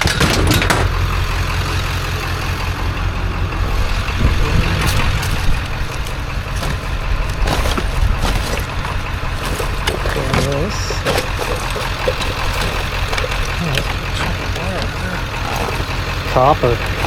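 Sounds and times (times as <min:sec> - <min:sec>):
vehicle engine idling: 0:00.0 - 0:17.0
scrap metal clinking: 0:04.8 - 0:17.0.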